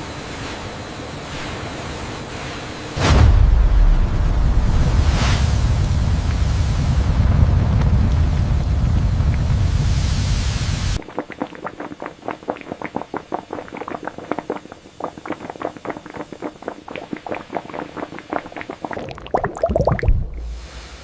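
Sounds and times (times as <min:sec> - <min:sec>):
loud low rumble: 0:03.0 - 0:11.0
syrup boiling with bubbles popping: 0:04.6 - 0:20.9.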